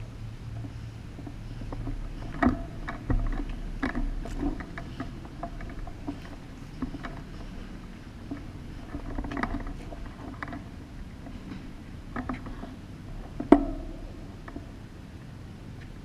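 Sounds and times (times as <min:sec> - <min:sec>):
steady low hum: 0:00.0 - 0:16.0
knocks and clicks: 0:13.3 - 0:14.7.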